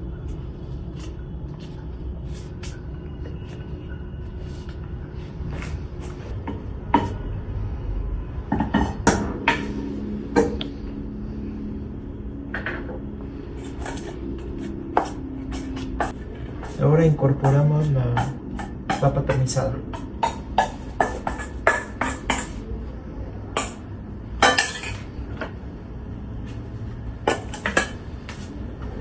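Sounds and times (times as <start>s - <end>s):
steady low rumble: 0.0s - 29.0s
cookware and utensils knocking: 8.5s - 9.7s, 17.3s - 22.6s, 23.5s - 23.8s, 24.4s - 25.0s.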